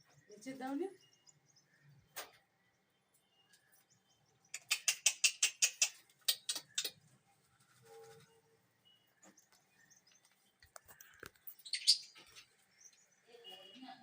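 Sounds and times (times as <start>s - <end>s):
lovebirds clicking: 3.1s - 7.1s, 9.2s - 13.0s.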